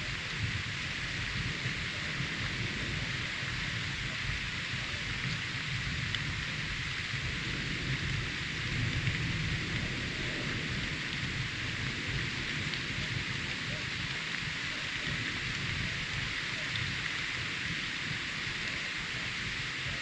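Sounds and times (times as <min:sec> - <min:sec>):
low thunder rumble: 0:00.0 - 0:20.0
steady rain hiss: 0:00.0 - 0:20.0.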